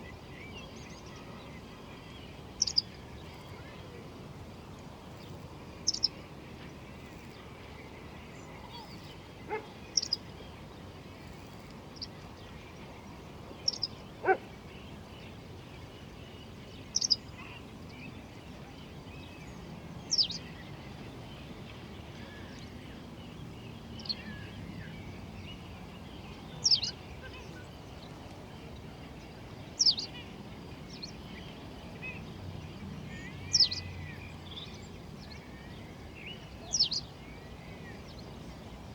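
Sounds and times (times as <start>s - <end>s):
bird chirping: 2.6s - 2.9s, 5.9s - 6.1s, 8.5s - 10.2s, 13.6s - 14.4s, 16.9s - 17.6s, 26.6s - 27.7s, 33.1s - 34.9s.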